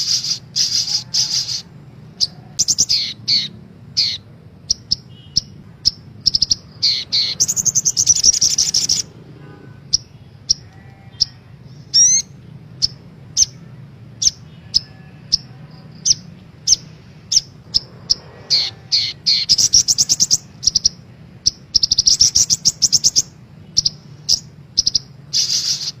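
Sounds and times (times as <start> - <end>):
bird sharp high chirps: 0.0 - 9.1, 9.9 - 13.6, 14.2 - 26.0
faint low hum: 0.0 - 26.0
bird rattling trills: 24.3 - 26.0.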